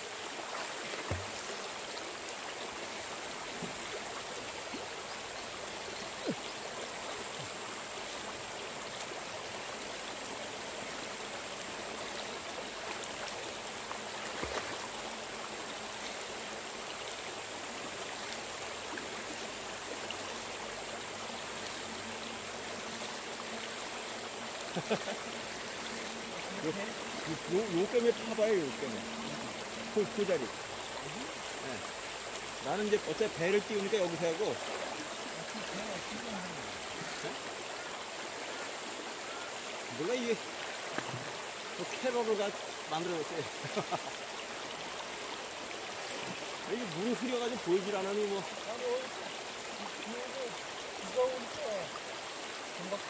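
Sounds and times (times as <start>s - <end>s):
river water rushing and splashing: 0.0s - 53.0s.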